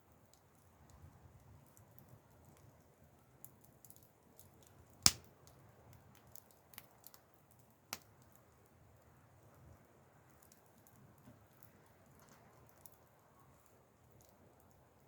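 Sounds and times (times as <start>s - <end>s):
campfire crackling: 0.0s - 15.0s
loud sharp crack of fire: 4.9s - 7.2s.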